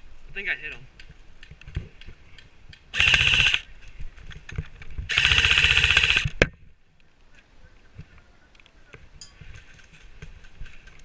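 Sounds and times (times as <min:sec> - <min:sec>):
airsoft rifle full-auto bursts: 0:02.9 - 0:03.7, 0:05.1 - 0:06.4.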